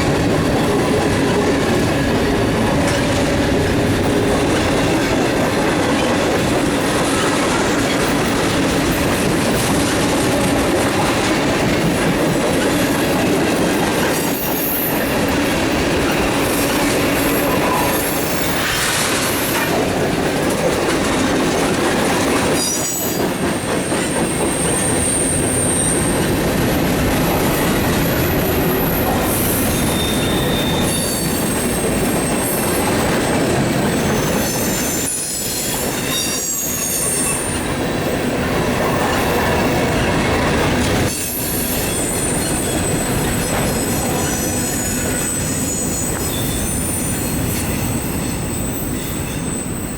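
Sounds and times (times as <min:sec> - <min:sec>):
freight cars rumbling on rails: 0:00.0 - 0:49.9
wheel squeals: 0:22.5 - 0:26.4, 0:27.2 - 0:37.9, 0:41.1 - 0:49.9.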